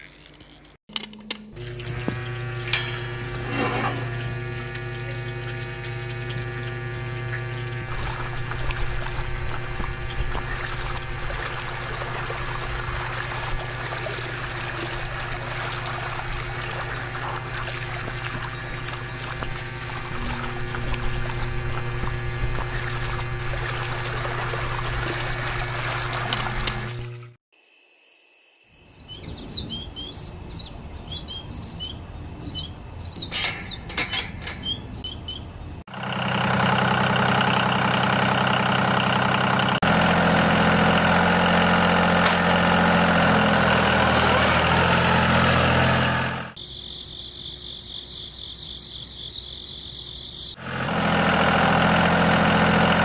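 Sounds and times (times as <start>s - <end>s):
water pouring and splashing: 1.6s - 27.4s
water pump humming: 1.6s - 27.4s, 35.7s - 46.6s, 50.6s - 53.0s.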